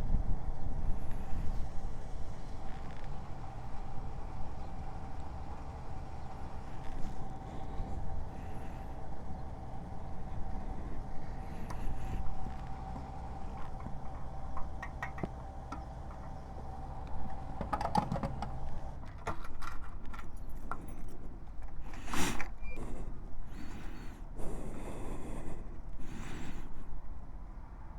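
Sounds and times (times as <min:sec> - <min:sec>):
faint whine: 0:00.0 - 0:27.9
motorcycle engine low rumble: 0:00.0 - 0:27.9
clicks and rattles: 0:11.6 - 0:22.6.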